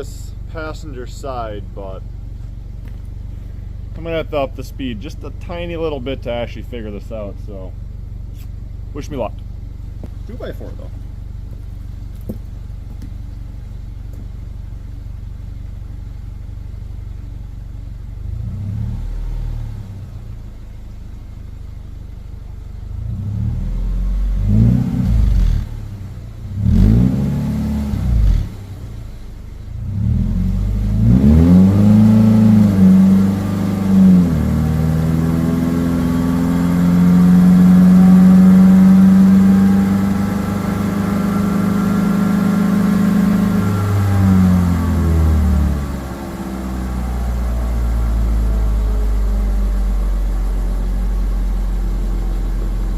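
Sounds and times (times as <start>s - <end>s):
car engine revving: 18.2s - 20.8s, 22.7s - 52.9s.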